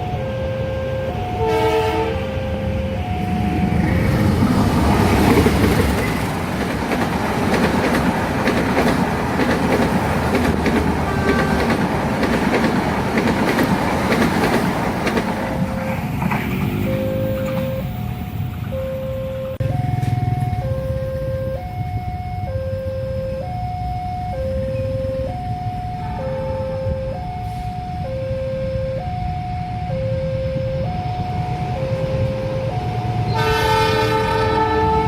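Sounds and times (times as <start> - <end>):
two-tone crossing alarm: 0.0 - 14.5, 15.1 - 35.0
train rumble: 0.0 - 35.0
train horn blast: 0.3 - 3.1, 11.0 - 11.8, 26.0 - 27.7, 33.2 - 35.0
train wheels clacking over rail joints: 4.4 - 15.6.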